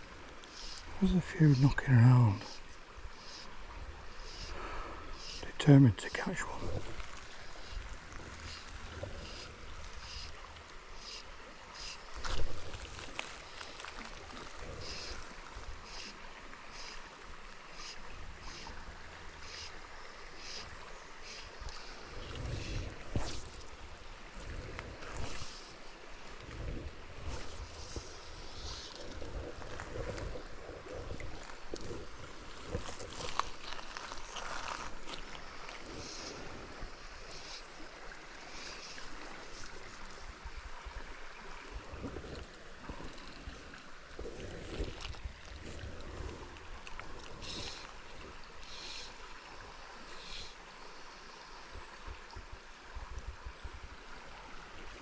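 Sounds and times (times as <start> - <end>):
river water flowing: 0.0 - 55.0
wind rumbling on microphone: 21.7 - 37.2, 39.1 - 48.6.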